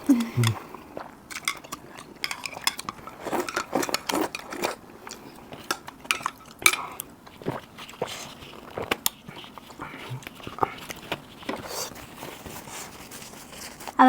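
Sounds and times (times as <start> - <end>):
eating sounds: 0.0 - 14.0
utensils clinking on dishes: 1.3 - 7.0.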